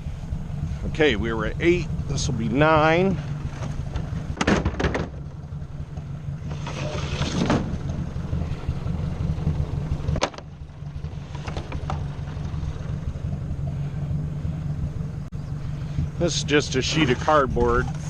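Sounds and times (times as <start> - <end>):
tractor engine running: 0.0 - 18.0
short knocks and clatters: 3.5 - 5.2.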